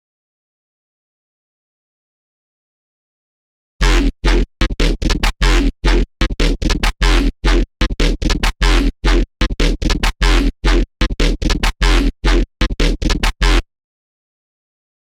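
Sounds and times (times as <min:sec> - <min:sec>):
deep bass: 0:03.8 - 0:13.6
stuttering chopped synthesizer notes: 0:03.8 - 0:13.6.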